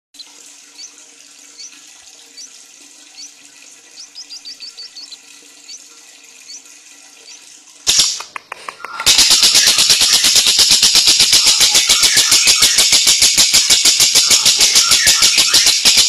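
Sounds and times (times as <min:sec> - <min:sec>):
small bird chirping: 0:00.2 - 0:01.0, 0:01.6 - 0:02.5, 0:03.2 - 0:07.5, 0:11.3 - 0:16.0.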